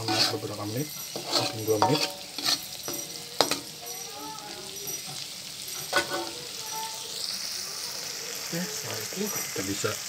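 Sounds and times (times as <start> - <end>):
metal spatula scraping a pan: 0.0 - 6.8
food sizzling in hot oil: 0.0 - 10.0.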